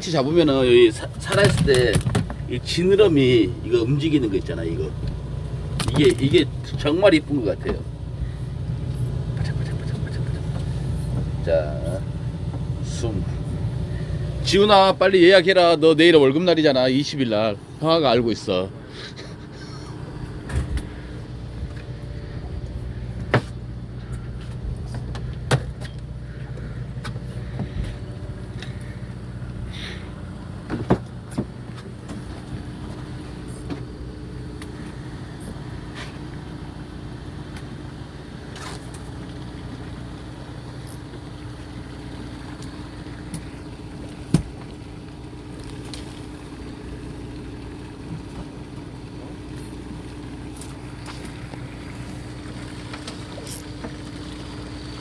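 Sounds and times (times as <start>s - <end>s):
boat engine idling: 0.0s - 55.0s
sharp knocks and clicks: 1.3s - 2.4s.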